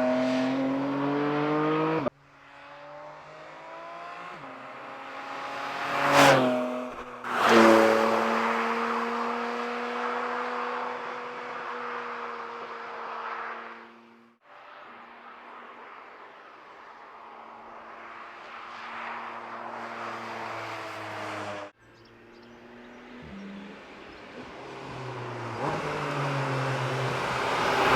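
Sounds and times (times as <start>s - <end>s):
sports car engine driving by: 19.9s - 27.9s.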